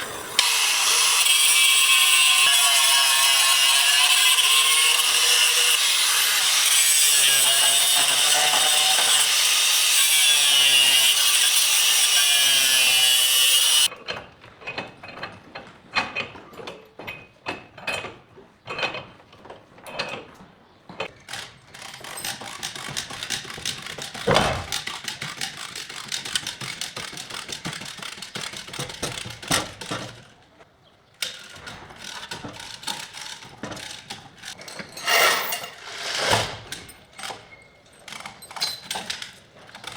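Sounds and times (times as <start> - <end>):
power tool running: 0.0 - 13.9, 35.0 - 36.8.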